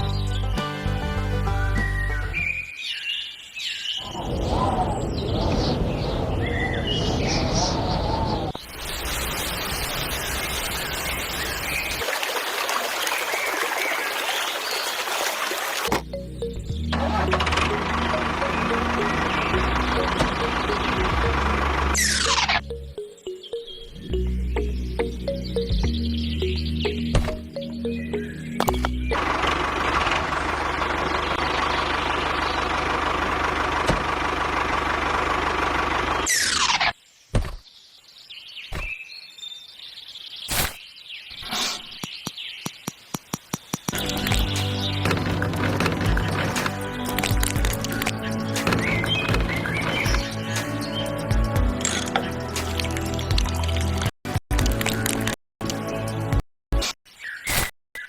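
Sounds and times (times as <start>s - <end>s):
trickling running water: 10.4s - 15.9s
small engine rattling: 29.2s - 36.3s.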